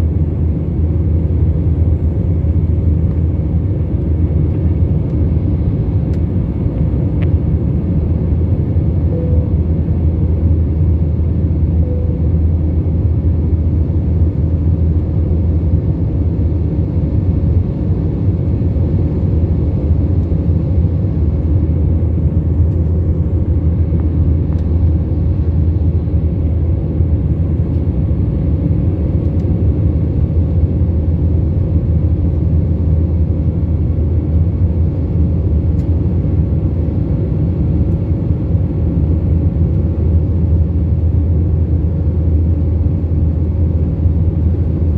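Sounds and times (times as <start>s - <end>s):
jet cabin engine rumble: 0.0s - 44.9s.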